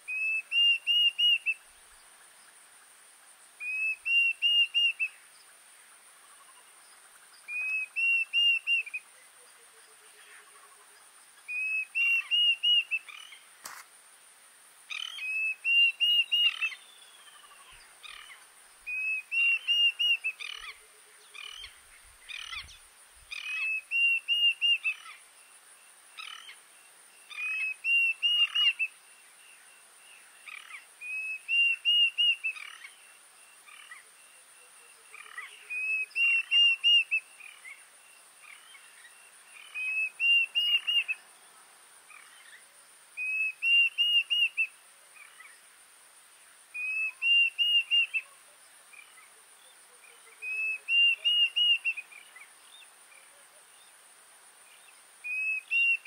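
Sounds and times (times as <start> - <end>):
steady high hiss: 0.0 - 56.0
songbird whistling phrase: 0.1 - 1.6, 3.6 - 5.2, 7.5 - 9.0, 11.5 - 13.3, 15.0 - 17.4, 18.9 - 20.7, 23.4 - 25.1, 27.3 - 28.9, 31.0 - 32.8, 35.2 - 37.3, 39.6 - 41.2, 43.2 - 44.7, 46.8 - 48.3, 50.4 - 52.2, 55.2 - 56.0.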